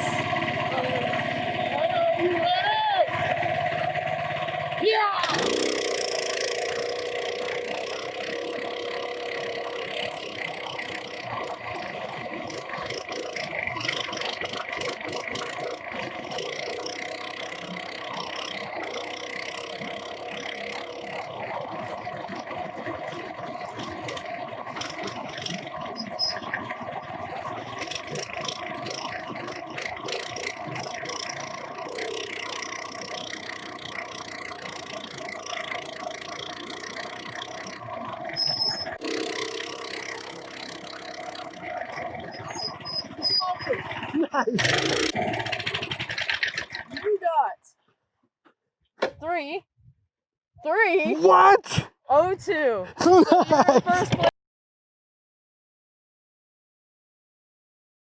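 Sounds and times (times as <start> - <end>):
minibike engine running: 0.0 - 47.6, 50.7 - 54.3
short clicks and rattles: 44.6 - 47.2.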